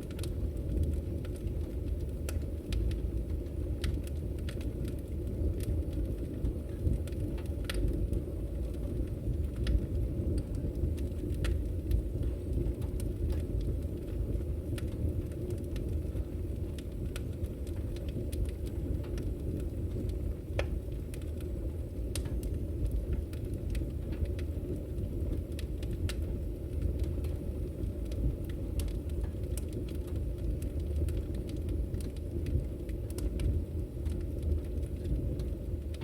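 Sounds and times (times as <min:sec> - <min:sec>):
fire rumbling: 0:00.0 - 0:36.0
firewood crackling and popping: 0:00.0 - 0:36.0.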